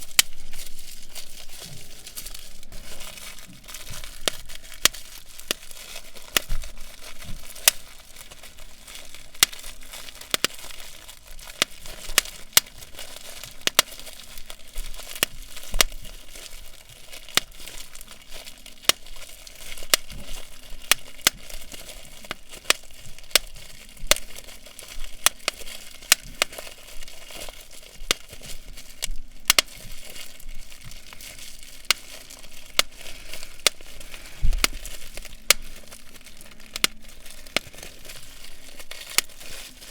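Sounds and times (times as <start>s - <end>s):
bubble wrap popping: 0.0s - 39.9s
plastic crinkling: 0.0s - 39.9s.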